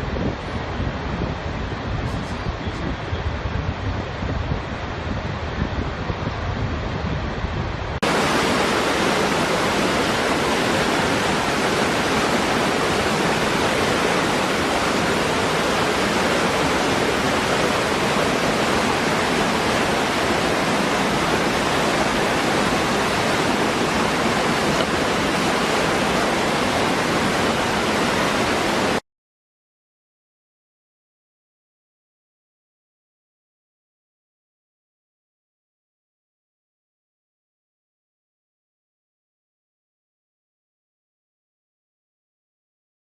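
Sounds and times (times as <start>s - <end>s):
dull windy sound: 0.0s - 29.0s
waterfall rushing: 8.0s - 29.0s.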